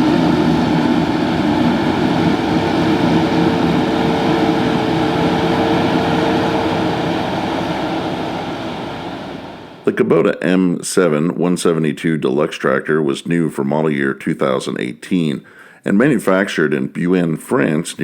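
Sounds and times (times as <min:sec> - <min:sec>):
tractor and harvester drone: 0:00.0 - 0:09.8.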